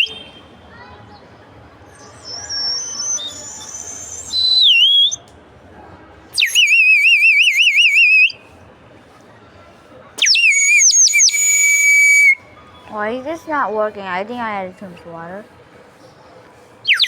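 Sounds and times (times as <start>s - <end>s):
water bird whistle warbling: 2.0s - 5.2s, 6.4s - 8.3s, 10.2s - 12.4s.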